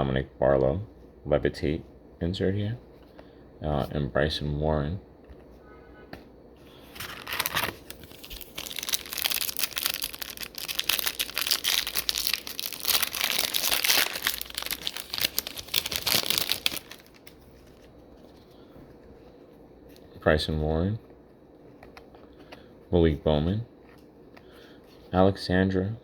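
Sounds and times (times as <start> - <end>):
foil wrapper tearing and crinkling: 7.0 - 17.4.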